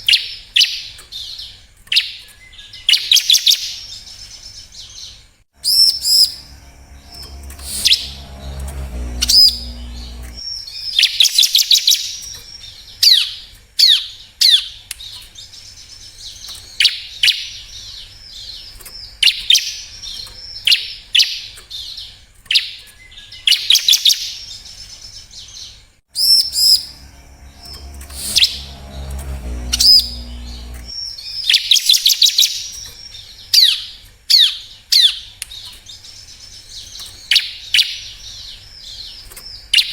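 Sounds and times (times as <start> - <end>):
low hum: 5.6 - 10.4, 26.2 - 31.0.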